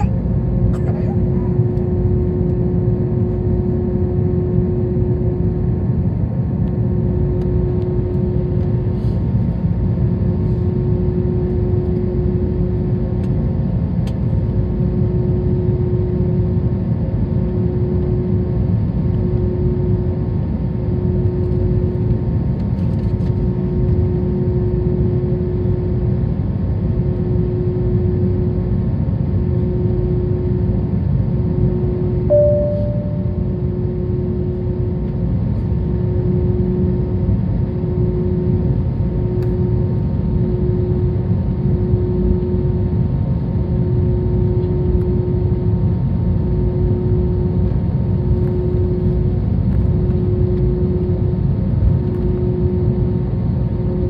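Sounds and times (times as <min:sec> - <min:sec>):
steady cabin hum: 0:31.5 - 0:35.2.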